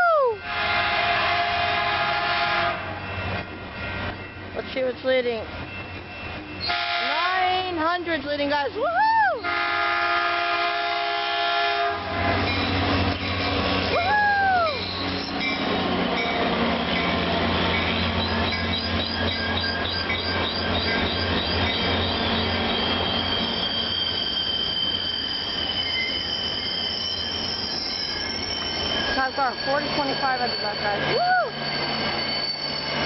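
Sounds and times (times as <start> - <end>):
person whooping shout: 0.0 - 0.4, 8.8 - 9.4, 13.9 - 14.8, 31.1 - 31.6
train horn chord: 0.4 - 3.1, 6.7 - 7.4, 9.4 - 12.4
high wheel squeal: 12.3 - 16.4, 17.0 - 33.0.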